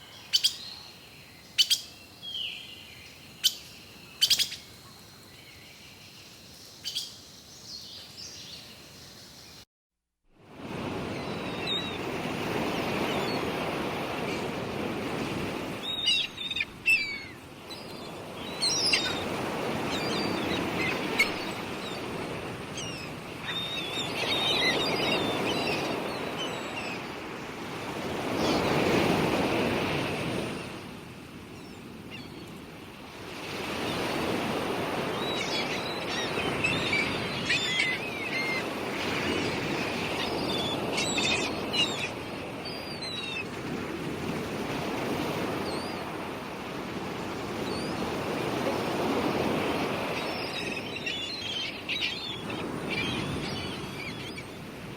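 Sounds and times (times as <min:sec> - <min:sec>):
birds chirping: 0:00.0 - 0:09.6, 0:15.7 - 0:27.2, 0:34.9 - 0:43.5, 0:49.4 - 0:54.7
surf washing in and out: 0:10.4 - 0:54.9.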